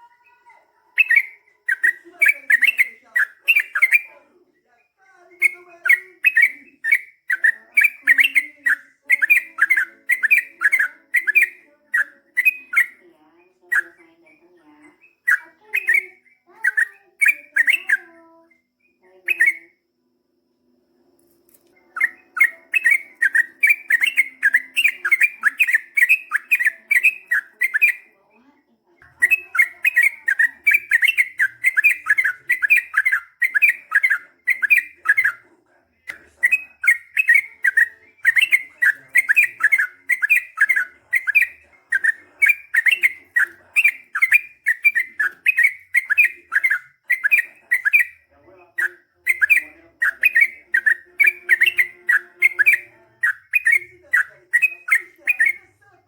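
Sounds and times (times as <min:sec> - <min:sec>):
bulbul singing repeated notes: 0:00.8 - 0:04.2, 0:05.3 - 0:19.8, 0:21.8 - 0:28.2, 0:29.0 - 0:35.5, 0:36.1 - 0:55.8.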